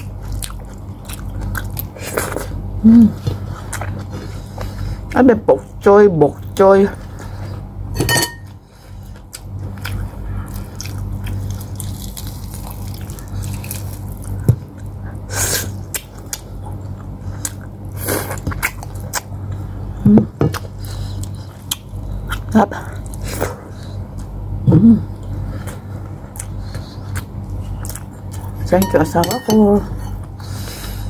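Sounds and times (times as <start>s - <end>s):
steady low hum: 0.0s - 31.0s
mouth chewing wet smacks: 25.7s - 28.5s.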